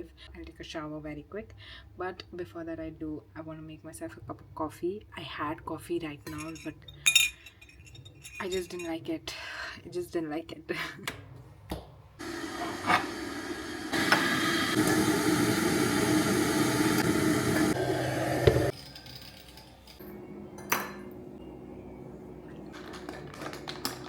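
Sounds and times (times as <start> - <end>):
crockery clink: 6.2 - 9.0, 18.6 - 23.0
coffee machine rushing with hum: 12.2 - 18.8, 20.0 - 24.0.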